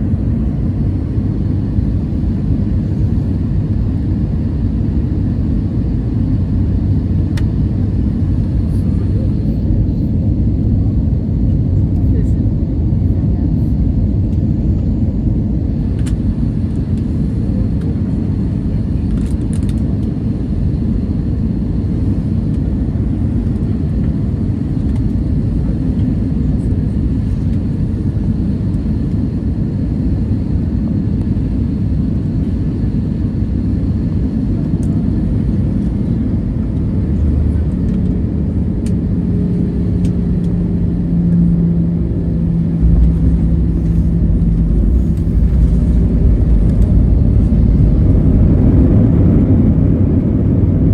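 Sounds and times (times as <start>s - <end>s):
aircraft engine rumble: 0.0s - 50.9s
steady hum: 38.4s - 50.9s
airflow: 41.5s - 50.7s.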